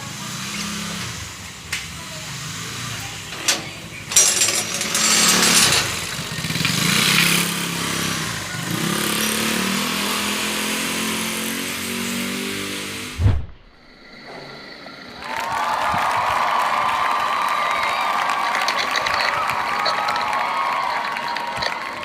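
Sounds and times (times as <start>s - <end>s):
motorcycle engine revving: 0.0s - 13.2s
thump: 13.2s - 14.6s.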